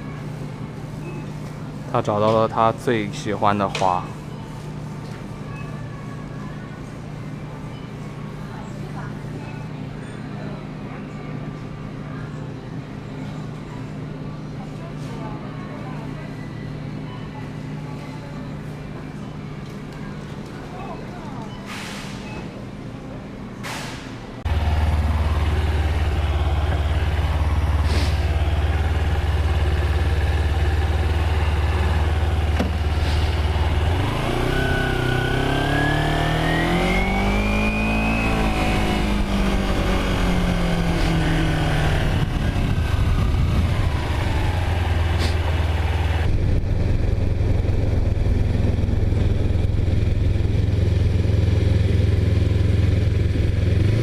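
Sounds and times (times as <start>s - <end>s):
vehicle engine humming and revving: 24.4s - 54.0s.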